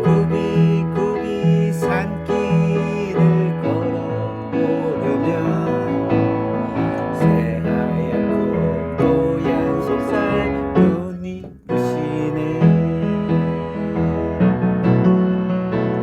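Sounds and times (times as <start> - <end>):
slow gentle piano song: 0.0 - 16.0.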